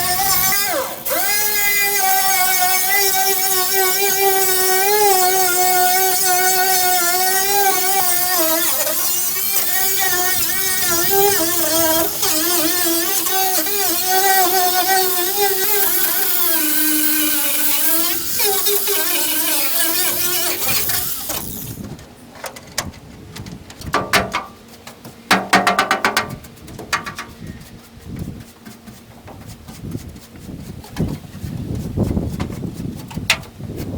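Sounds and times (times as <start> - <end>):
angle grinder on steel: 0.0 - 21.9.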